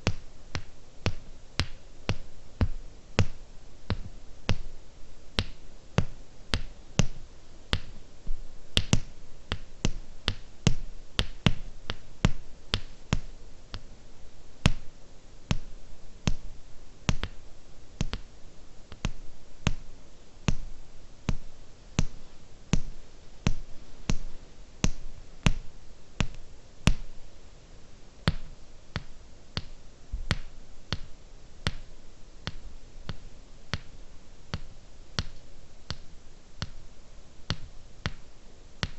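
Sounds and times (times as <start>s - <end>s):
fingernail tapping on hard objects: 5.4s - 8.0s, 8.8s - 13.9s, 17.1s - 17.4s, 18.0s - 18.3s, 22.0s - 22.2s, 22.8s - 27.0s, 31.7s - 31.9s, 34.6s - 36.8s, 37.5s - 38.2s.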